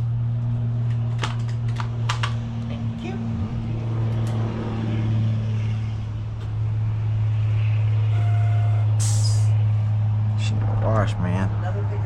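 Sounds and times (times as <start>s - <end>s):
truck diesel engine running: 0.0s - 12.0s
short air hiss: 9.0s - 9.5s.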